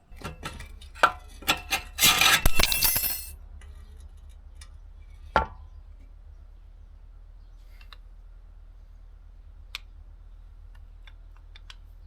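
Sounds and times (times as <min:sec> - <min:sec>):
metal parts clattering and scraping: 0:00.2 - 0:03.4.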